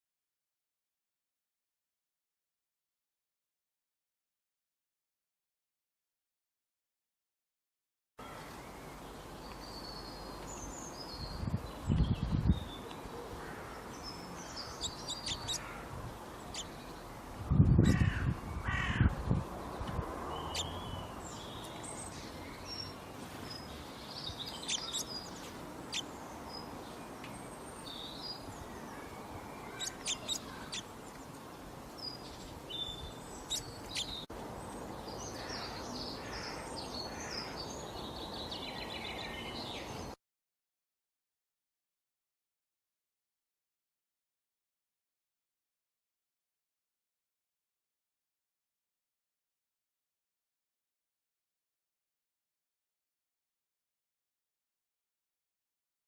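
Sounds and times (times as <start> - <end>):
wild birds chirping: 8.2 - 40.2
crows cawing: 13.4 - 13.9, 14.5 - 15.9, 17.9 - 19.1, 35.4 - 37.6.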